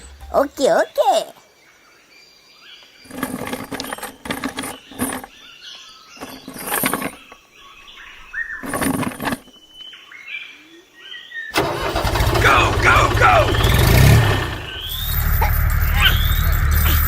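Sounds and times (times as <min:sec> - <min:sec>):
birds chirping and whistling: 0:01.7 - 0:11.6, 0:12.6 - 0:17.0
loud rustling bursts: 0:03.0 - 0:05.3, 0:06.2 - 0:07.4, 0:08.6 - 0:09.6.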